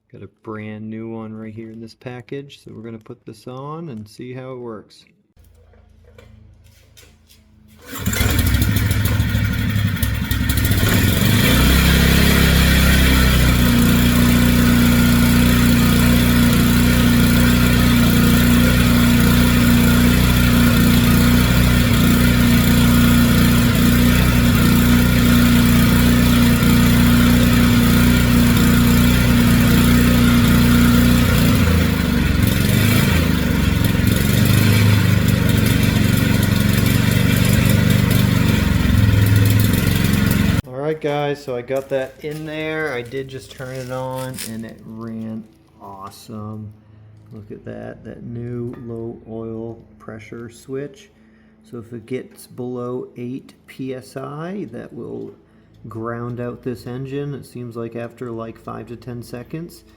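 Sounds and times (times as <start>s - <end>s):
generator engine starting and running: 5.4s - 46.0s.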